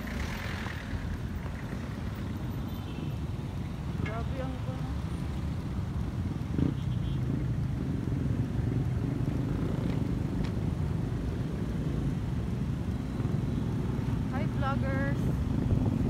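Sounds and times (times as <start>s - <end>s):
vehicle engine and road noise: 0.0s - 16.0s.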